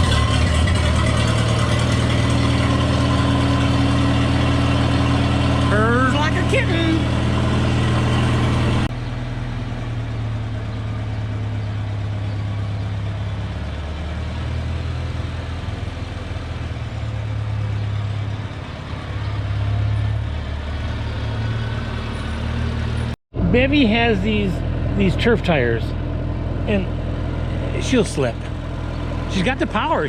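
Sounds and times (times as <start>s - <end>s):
tractor engine idling: 0.0s - 30.0s.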